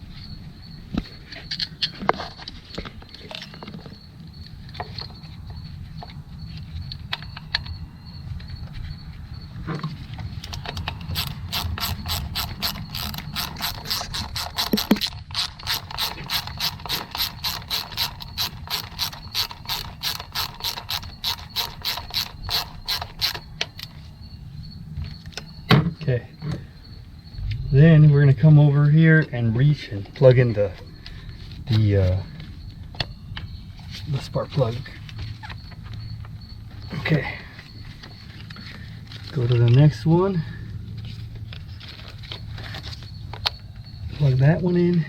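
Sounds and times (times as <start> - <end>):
hand ratchet clicking: 10.5 - 23.9.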